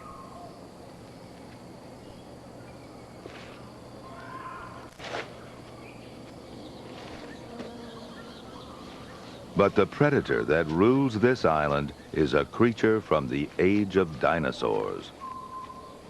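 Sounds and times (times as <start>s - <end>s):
faint bird calls: 0.0s - 0.7s, 2.0s - 10.8s, 15.1s - 16.0s
sharp snap or rustle: 4.8s - 5.5s.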